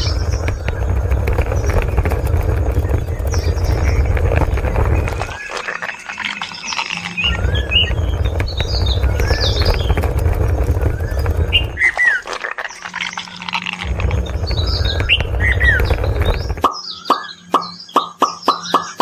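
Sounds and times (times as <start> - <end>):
loud low rumble: 0.0 - 5.5, 7.2 - 12.3, 13.8 - 16.6
birds chirping: 0.0 - 19.0.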